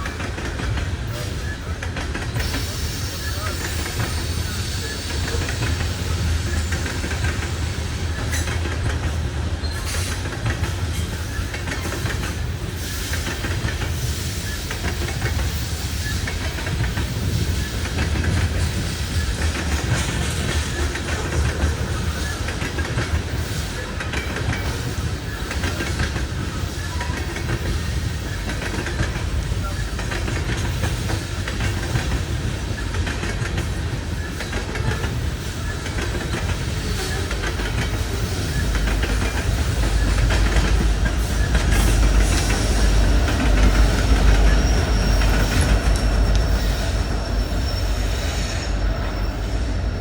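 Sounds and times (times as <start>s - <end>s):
freight train rumbling past: 0.0s - 50.0s
wheels clicking over rail joints: 3.7s - 46.7s.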